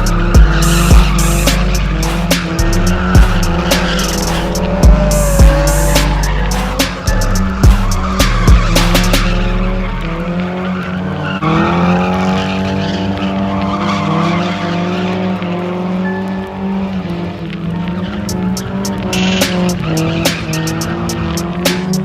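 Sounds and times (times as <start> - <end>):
sharp cracks: 0.0 - 10.8, 17.4 - 22.0
tyres squealing: 0.0 - 15.4, 17.9 - 22.0
car engine revving high: 0.0 - 22.0.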